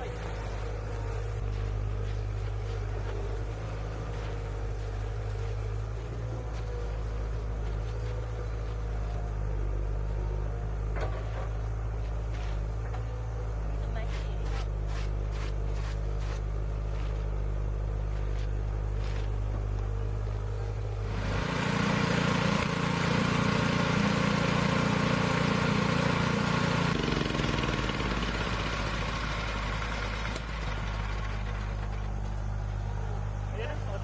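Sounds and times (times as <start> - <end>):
heavy machine engine revving: 20.8 - 32.2.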